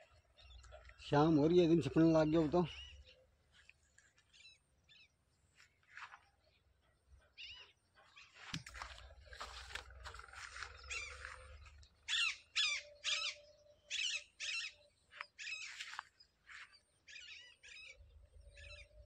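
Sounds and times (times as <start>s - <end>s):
birds warbling calls: 0.0s - 3.4s, 7.2s - 19.0s.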